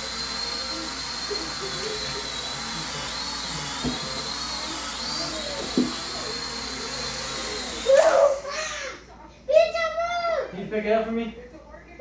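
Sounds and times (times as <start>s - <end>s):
toy drone motors whining: 0.0s - 8.9s.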